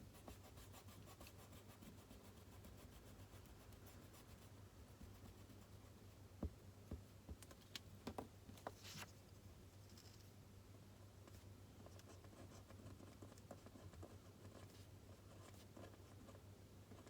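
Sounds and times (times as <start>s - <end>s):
faint room hum: 0.0s - 17.0s.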